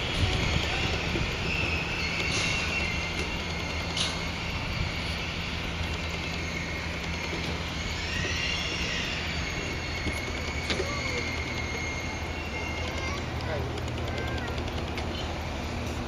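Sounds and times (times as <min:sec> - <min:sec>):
high wheel squeal: 0:00.0 - 0:16.0
train wheels rumbling on rail: 0:00.0 - 0:16.0
sharp clicks: 0:12.8 - 0:15.3.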